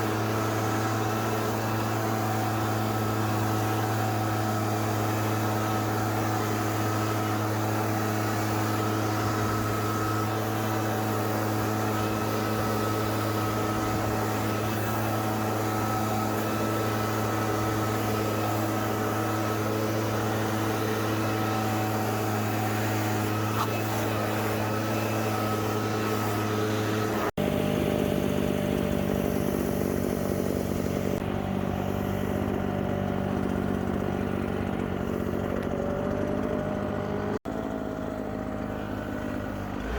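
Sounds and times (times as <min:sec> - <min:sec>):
lower pitched engine running: 0:00.0 - 0:39.9
string trimmer engine running: 0:00.0 - 0:39.9.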